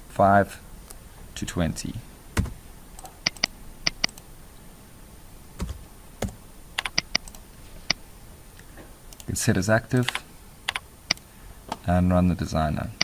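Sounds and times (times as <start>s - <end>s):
keyboard and mouse clicks: 2.4s - 4.3s, 5.6s - 8.0s, 10.0s - 11.8s.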